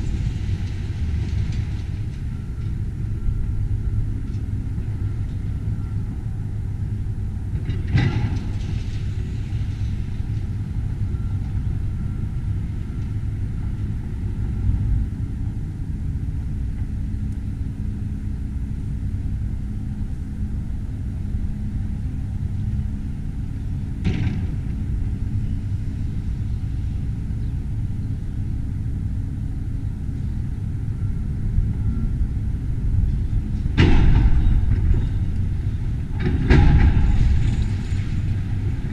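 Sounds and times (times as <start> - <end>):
demolition machine running: 18.8 - 38.9.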